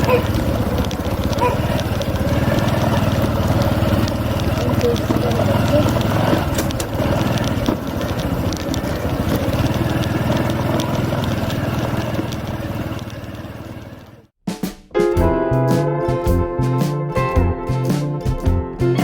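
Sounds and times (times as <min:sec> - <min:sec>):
small engine running steadily: 0:00.0 - 0:14.3.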